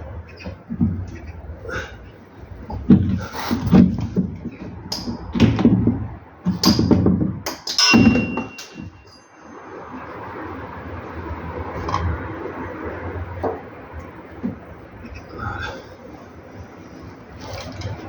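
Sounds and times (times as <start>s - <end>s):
hand tools clanking on metal: 4.9s - 5.5s, 6.5s - 9.4s.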